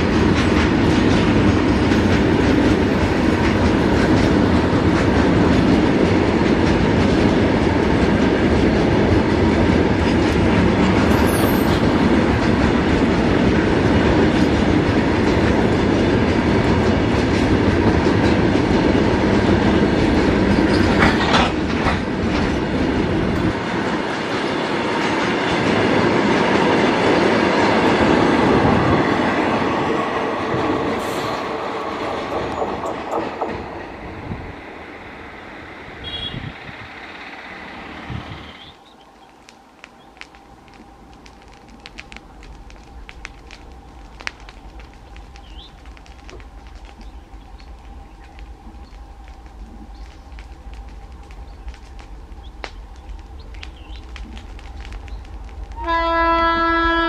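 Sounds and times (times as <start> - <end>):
freight train rumbling past: 0.0 - 57.0
wheels clacking over rail joints: 0.0 - 57.0
high wheel squeal: 11.1 - 11.9.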